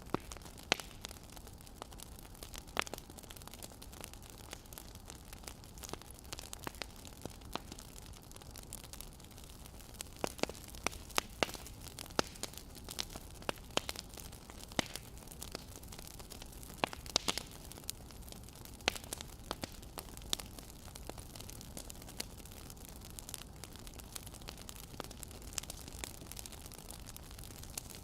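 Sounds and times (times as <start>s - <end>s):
low steady hiss: 0.0s - 28.0s
wood fire crackling: 0.0s - 28.0s.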